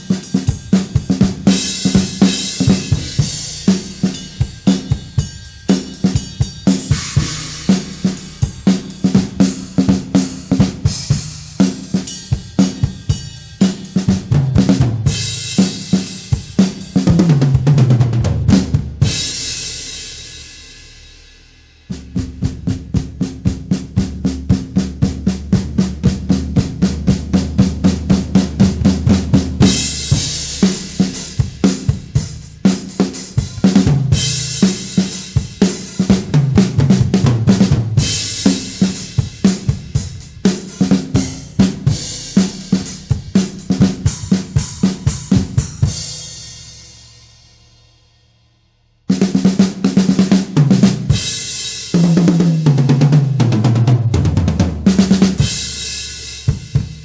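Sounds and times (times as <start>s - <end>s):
drum kit groove: 0.0s - 47.8s, 49.0s - 57.0s
cymbal crashes: 1.5s - 11.6s.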